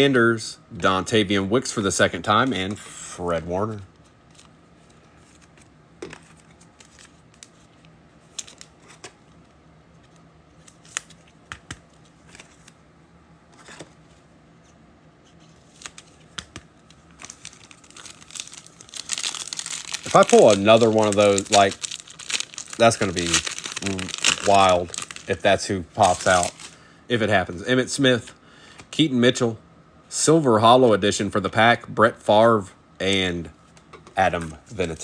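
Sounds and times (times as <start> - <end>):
cards and foil wrappers crinkling: 5.3 - 7.7, 8.3 - 9.1, 15.4 - 26.8, 34.3 - 35.0.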